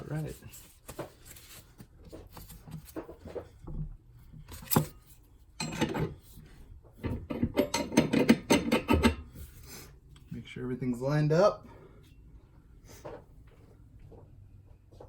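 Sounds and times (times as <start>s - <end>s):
metal parts clinking and scraping: 4.5s - 6.2s.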